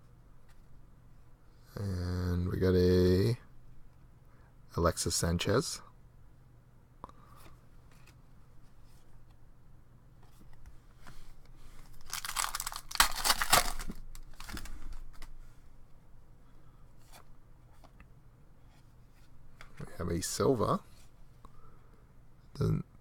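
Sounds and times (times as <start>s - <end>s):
wrapper crinkling: 11.9s - 14.7s
wrapper tearing: 12.0s - 14.7s.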